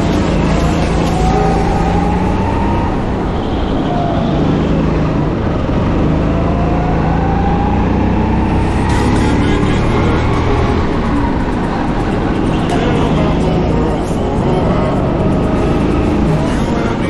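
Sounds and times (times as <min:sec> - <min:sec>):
go-kart engine accelerating: 0:00.0 - 0:17.0.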